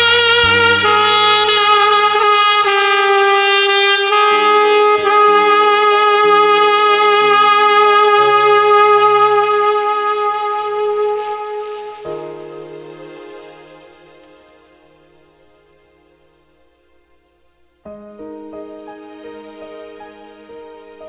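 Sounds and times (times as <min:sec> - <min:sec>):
backing track with bass line: 0:00.0 - 0:02.3
alto saxophone playing: 0:00.0 - 0:12.5.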